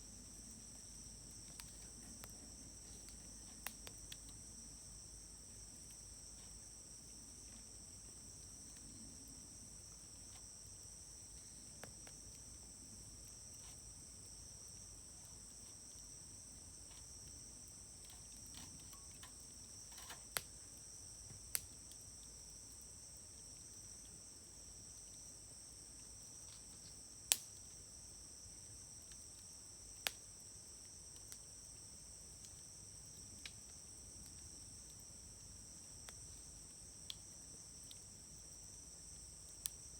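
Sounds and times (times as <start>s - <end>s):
wood fire popping: 0.9s - 4.4s.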